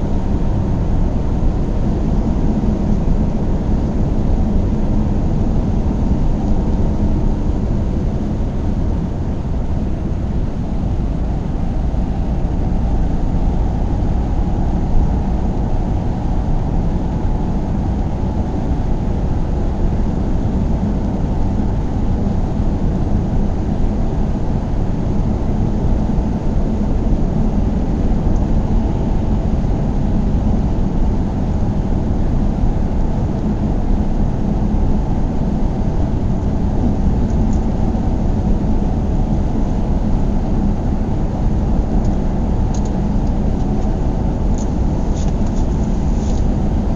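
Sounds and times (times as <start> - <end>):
car engine and road noise: 0.0 - 46.9.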